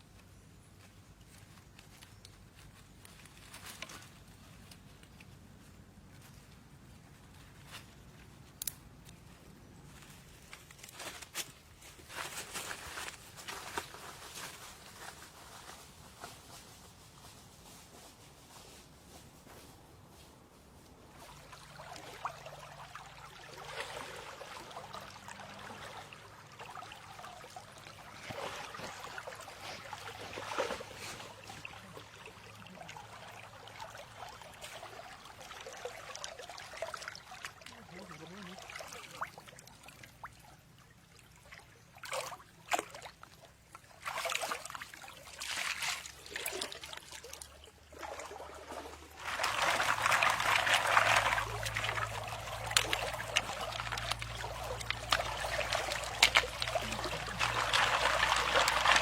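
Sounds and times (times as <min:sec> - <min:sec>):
water trickling and splashing: 0:20.9 - 0:59.0.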